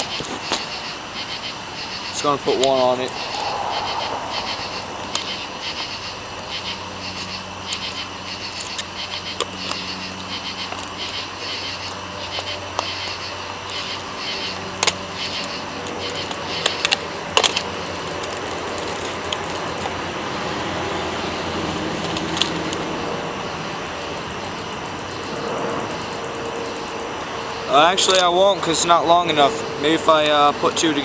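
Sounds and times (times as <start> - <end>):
insect chorus: 0.0 - 31.0
low hum: 2.5 - 6.8.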